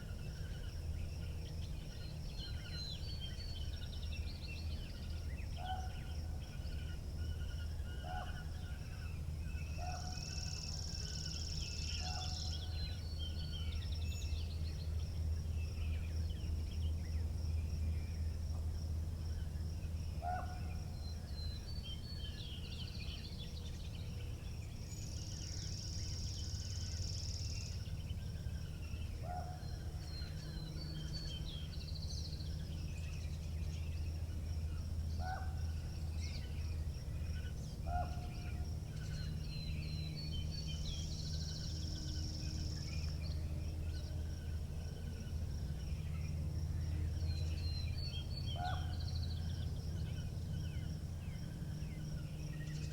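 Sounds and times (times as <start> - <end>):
low rumble of wind: 0.0 - 52.9
small birds chirping: 19.3 - 52.9.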